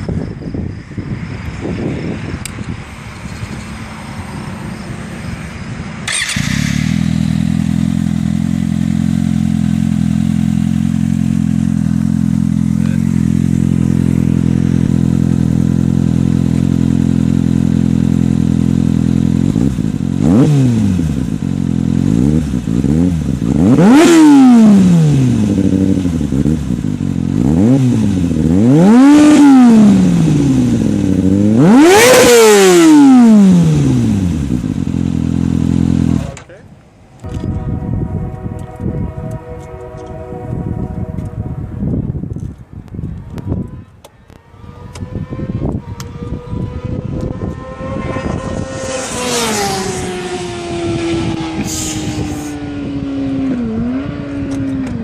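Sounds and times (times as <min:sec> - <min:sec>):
high pitched tone sinking: 0:00.0 - 0:08.1
motorcycle engine revving: 0:01.1 - 0:55.0.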